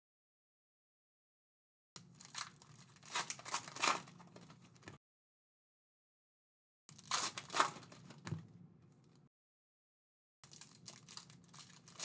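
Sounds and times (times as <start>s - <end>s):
card pack wrappers crinkling and tearing: 2.2s - 4.9s, 7.0s - 8.2s, 10.5s - 12.0s.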